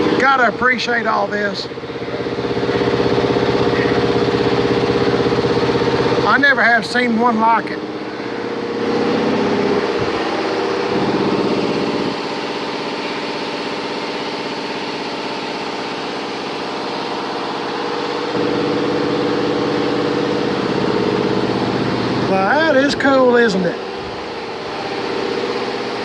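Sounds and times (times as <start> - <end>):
air compressor humming: 0.0 - 26.0.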